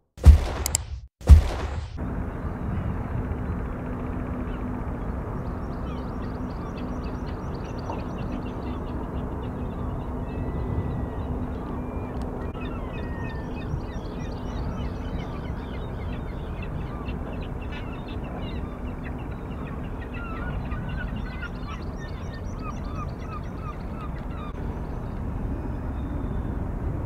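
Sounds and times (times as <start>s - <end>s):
steady low rumble: 0.2s - 12.9s
many birds calling: 4.3s - 26.4s.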